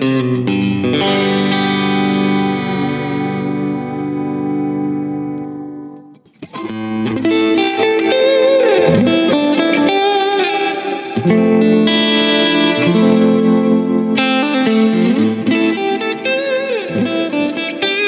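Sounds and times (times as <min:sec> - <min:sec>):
electric guitar through amplifier: 0:06.3 - 0:18.0.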